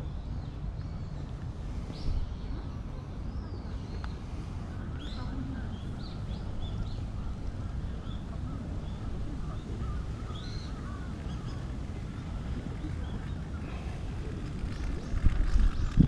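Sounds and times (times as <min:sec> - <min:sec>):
birds chirping and calling: 0:03.4 - 0:16.0.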